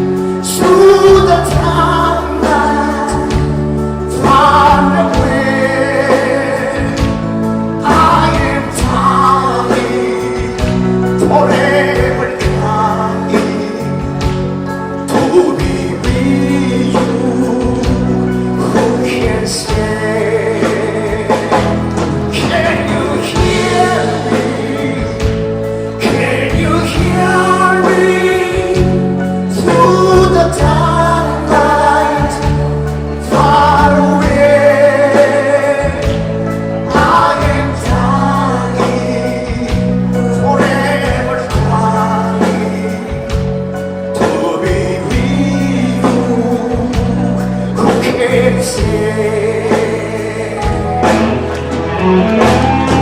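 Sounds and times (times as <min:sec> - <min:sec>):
held bass notes: 0:00.0 - 0:53.0
person singing: 0:00.0 - 0:53.0.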